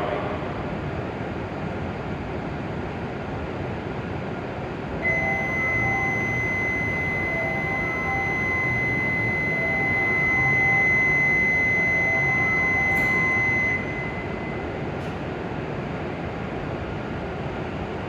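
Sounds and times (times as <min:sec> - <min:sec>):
platform departure buzzer tone: 0:05.0 - 0:14.9.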